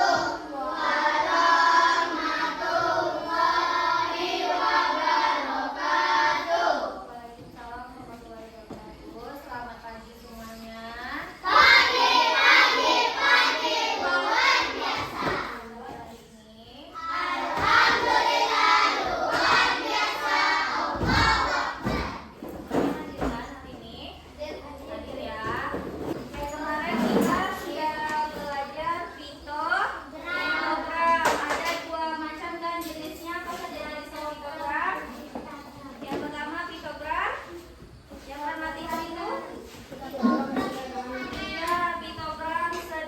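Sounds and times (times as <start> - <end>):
children singing: 0.0 - 7.1, 11.4 - 15.6, 17.0 - 22.9.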